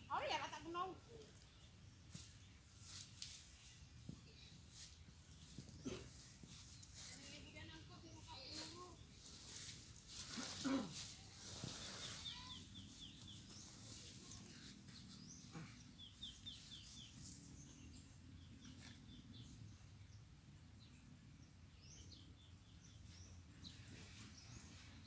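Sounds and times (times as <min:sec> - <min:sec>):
small bird singing: 0:11.2 - 0:20.2, 0:20.8 - 0:25.0.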